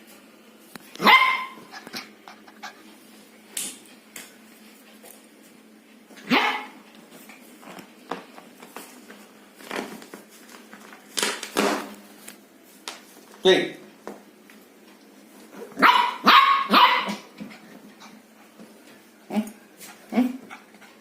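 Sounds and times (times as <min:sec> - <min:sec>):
dog barking: 0:01.0 - 0:01.6, 0:06.2 - 0:06.8, 0:15.8 - 0:17.3
dog yipping: 0:01.0 - 0:01.8, 0:06.2 - 0:06.8, 0:15.8 - 0:17.3.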